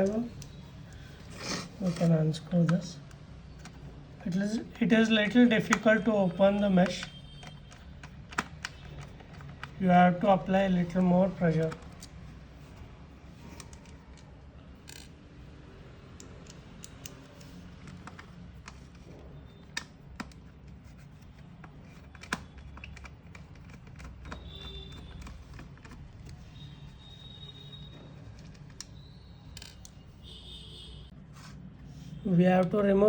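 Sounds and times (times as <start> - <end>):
screwdriver clicking on plastic casing: 5.2 - 9.8, 16.2 - 19.0, 19.6 - 26.7.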